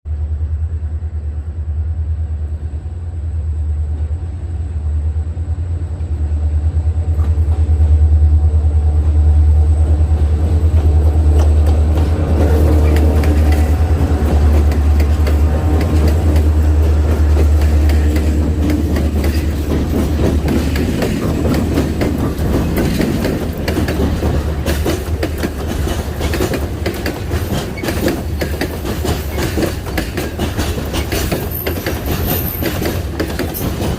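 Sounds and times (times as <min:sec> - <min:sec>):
locomotive engine rumble: 0:00.1 - 0:33.9
wheels clattering over rail joints: 0:10.3 - 0:33.9.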